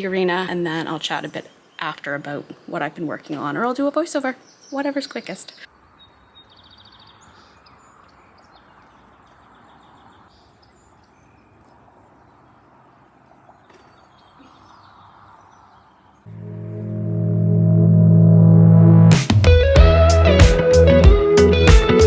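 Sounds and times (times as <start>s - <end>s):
faint background noise: 0.0s - 16.3s
small birds chirping: 0.0s - 16.3s
guitar music: 16.3s - 22.0s.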